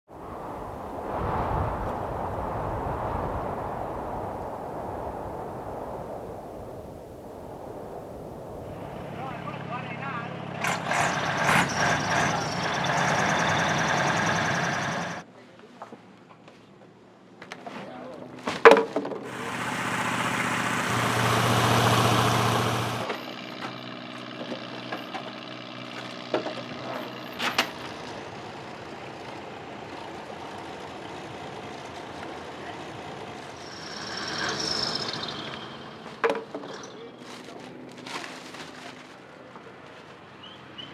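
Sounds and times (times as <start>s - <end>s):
loud rushing burst: 0.1s - 15.2s, 19.3s - 23.1s
engine running: 7.8s - 15.2s, 19.2s - 40.8s.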